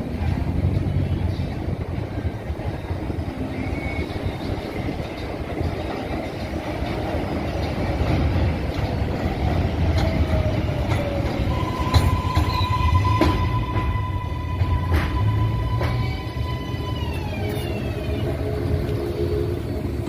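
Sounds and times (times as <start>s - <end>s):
train rumble and wheel noise: 0.0s - 20.0s.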